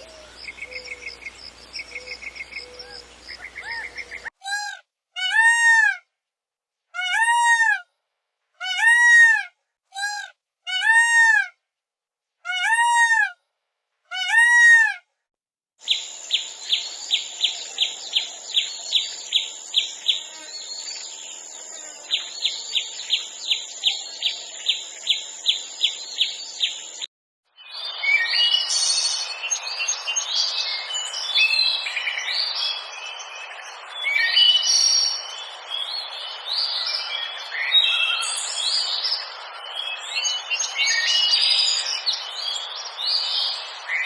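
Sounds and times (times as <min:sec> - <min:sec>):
drawn-out rising and falling bird calls: 0:00.0 - 0:04.4.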